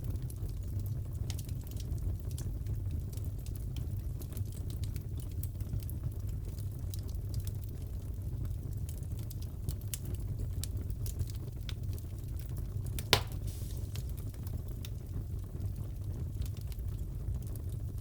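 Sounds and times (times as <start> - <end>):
fireplace crackling: 11.0 - 17.7
wood fire pop: 13.0 - 14.4.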